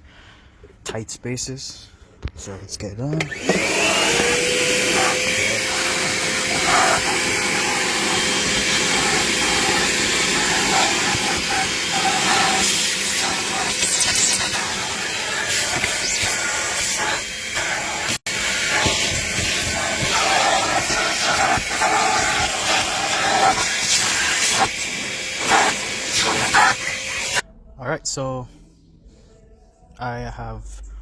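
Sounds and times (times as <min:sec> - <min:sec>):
shop vac motor whine: 0:03.2 - 0:27.4
air hissing through nozzle: 0:03.9 - 0:27.4.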